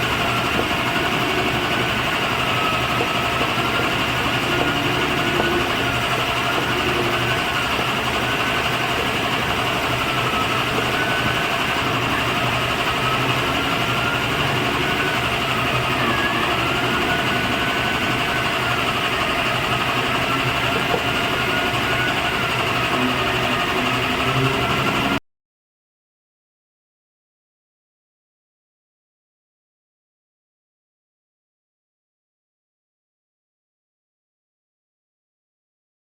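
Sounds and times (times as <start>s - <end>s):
wood lathe whining: 0.0s - 25.2s.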